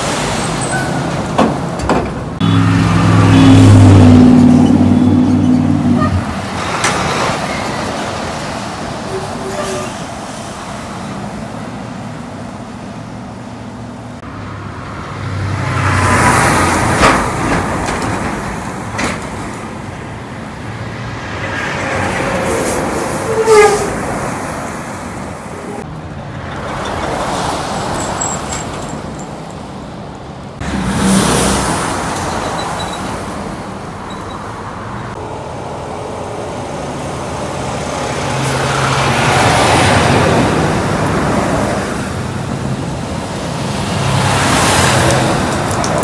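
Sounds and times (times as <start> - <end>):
diesel truck engines pulling away: 0.0 - 17.8, 30.6 - 46.0
knocks and clanks: 0.7 - 2.4, 16.8 - 19.8.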